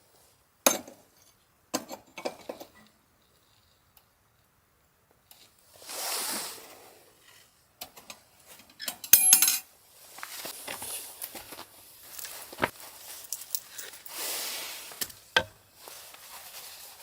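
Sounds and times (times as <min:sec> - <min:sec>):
metallic clink: 0:09.0 - 0:09.6, 0:13.2 - 0:14.2.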